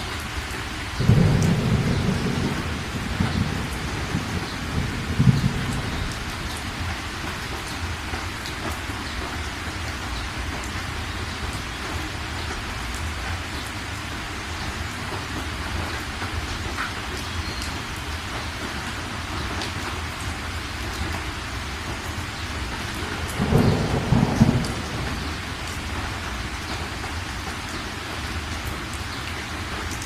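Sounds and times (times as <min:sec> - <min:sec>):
heavy rain: 0:00.0 - 0:30.0
thunder rumble: 0:01.0 - 0:07.5, 0:23.1 - 0:26.6.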